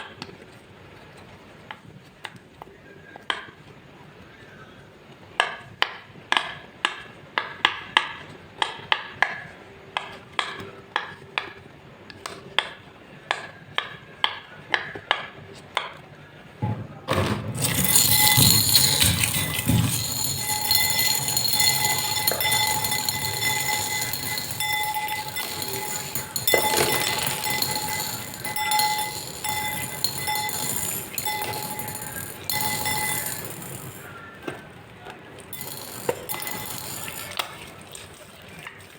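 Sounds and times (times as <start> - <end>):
dense noise with ringing tones: 16.6 - 38.9
sharp clinks of hard objects: 17.6 - 34.7, 35.4 - 38.9.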